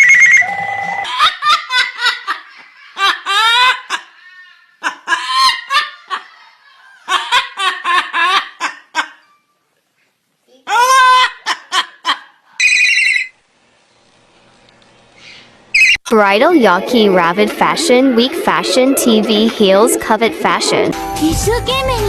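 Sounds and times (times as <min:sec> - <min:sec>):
parrot imitating laughter: 0:01.0 - 0:09.3, 0:10.6 - 0:12.9.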